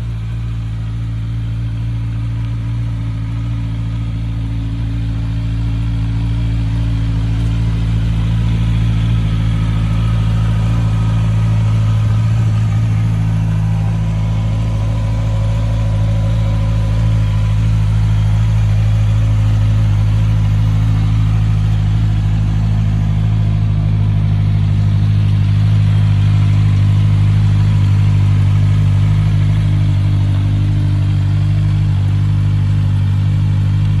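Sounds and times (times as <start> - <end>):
motorcycle engine idling: 0.0 - 34.0.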